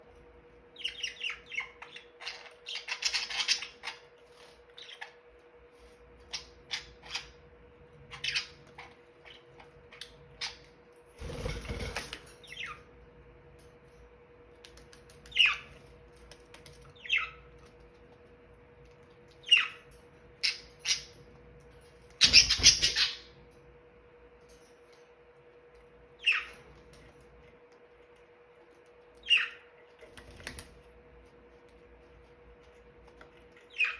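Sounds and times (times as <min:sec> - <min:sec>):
faint steady hum: 0:00.0 - 0:33.9
budgerigars chirping: 0:00.8 - 0:05.2, 0:08.1 - 0:10.6, 0:15.3 - 0:15.7, 0:17.0 - 0:17.4, 0:19.4 - 0:19.8, 0:22.2 - 0:23.3, 0:26.2 - 0:26.5, 0:29.2 - 0:29.7, 0:33.7 - 0:33.9.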